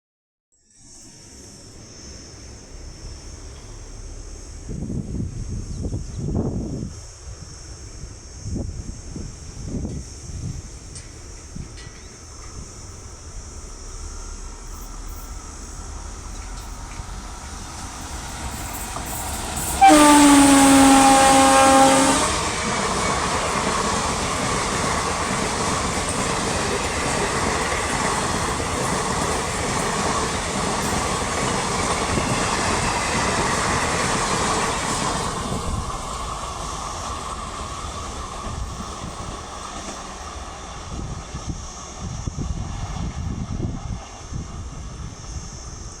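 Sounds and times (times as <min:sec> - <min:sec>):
train rumbling past: 0:00.8 - 0:46.0
locomotive horn blast: 0:19.8 - 0:22.6.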